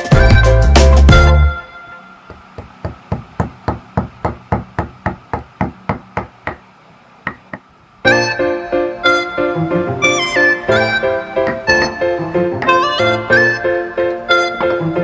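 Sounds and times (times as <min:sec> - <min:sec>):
background music: 0:00.0 - 0:02.2, 0:08.1 - 0:15.0
hand tool knocking on wood: 0:02.3 - 0:06.7, 0:07.3 - 0:07.7.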